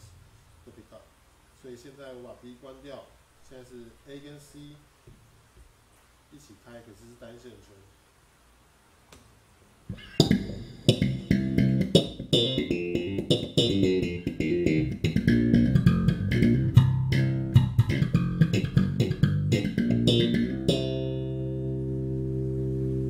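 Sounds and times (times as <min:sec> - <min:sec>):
electric bass plucked notes: 0:09.9 - 0:23.0.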